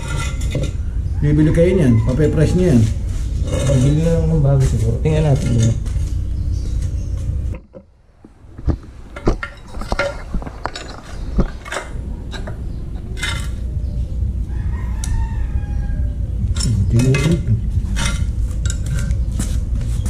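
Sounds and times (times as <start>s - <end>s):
rooster crowing: 0.8s - 3.1s, 12.1s - 16.4s.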